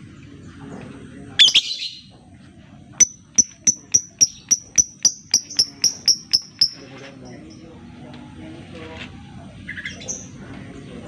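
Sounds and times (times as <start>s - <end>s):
bird chirping sharply: 1.4s - 2.1s.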